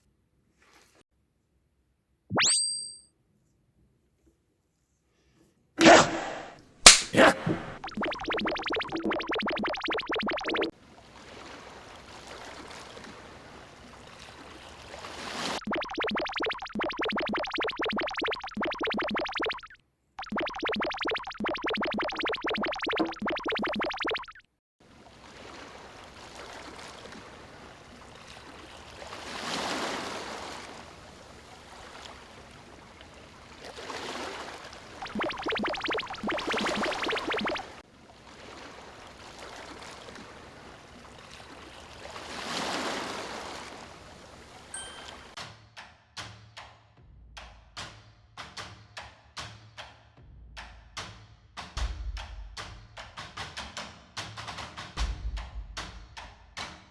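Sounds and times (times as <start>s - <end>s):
synthesizer music with repeated notes: 7.4s - 10.7s, 15.6s - 24.4s, 35.0s - 37.8s.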